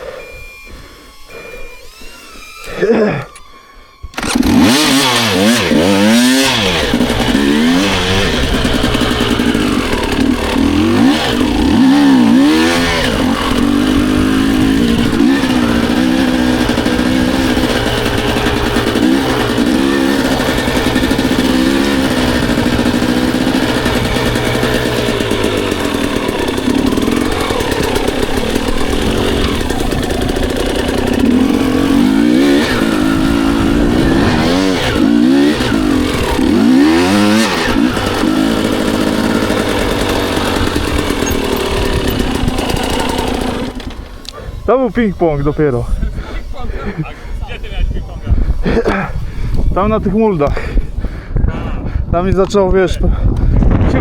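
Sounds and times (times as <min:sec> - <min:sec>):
dirt bike engine revving: 0:00.0 - 0:51.4.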